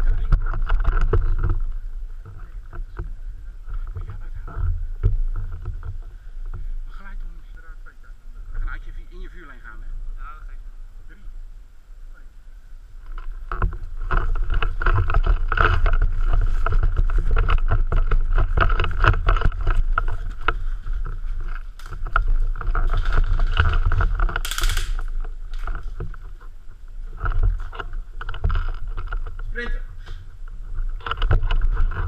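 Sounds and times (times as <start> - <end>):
wind and handling noise on microphone: 0.0 - 32.0
gear rattling and knocking: 13.0 - 26.5, 27.1 - 29.6, 30.6 - 32.0.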